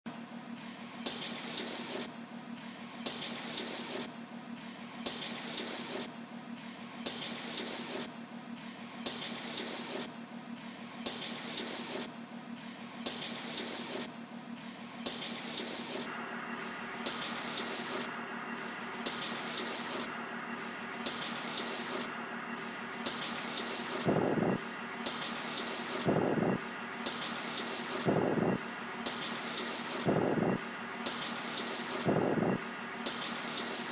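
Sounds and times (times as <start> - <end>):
low hum: 32.1 - 32.6.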